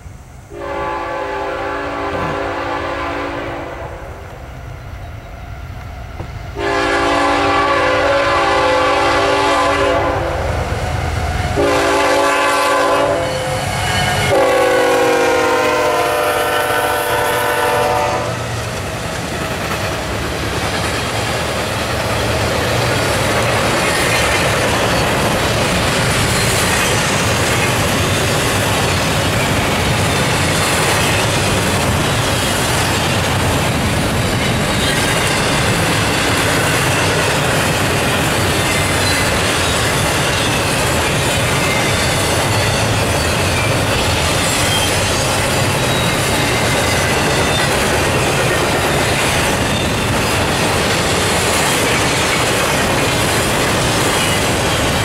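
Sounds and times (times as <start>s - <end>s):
freight train rumble: 0.0s - 55.0s
locomotive air horn: 0.5s - 4.1s, 6.6s - 10.5s, 11.2s - 18.7s
train wheels clickety-clack: 11.4s - 55.0s.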